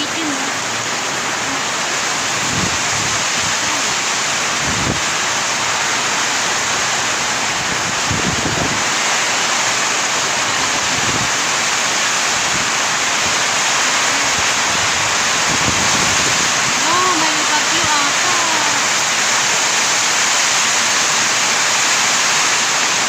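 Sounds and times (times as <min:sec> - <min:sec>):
heavy rain pouring: 0:00.0 - 0:23.0
wind gusts buffeting microphone: 0:02.0 - 0:06.2, 0:07.0 - 0:20.5.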